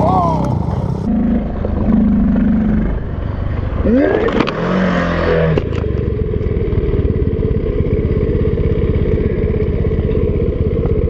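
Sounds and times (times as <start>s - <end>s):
dirt bike engine running: 5.5s - 11.0s.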